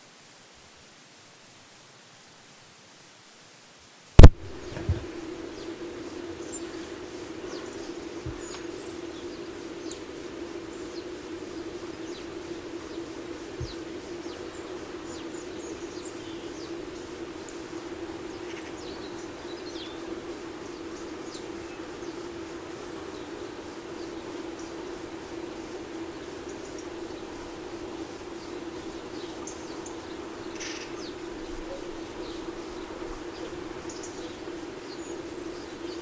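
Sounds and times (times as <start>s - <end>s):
small birds chirping: 4.2s - 36.0s
steady low hum: 4.2s - 36.0s.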